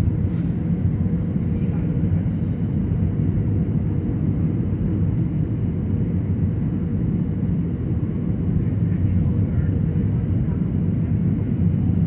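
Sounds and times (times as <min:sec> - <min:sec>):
aircraft cabin engine drone: 0:00.0 - 0:12.0.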